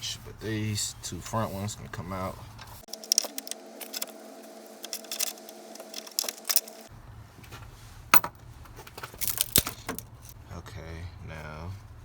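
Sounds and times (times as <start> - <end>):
steady hum: 0.0 - 7.2
socket ratchet clicking: 2.9 - 4.2, 4.8 - 6.9
loose bolts clinking: 2.9 - 6.9.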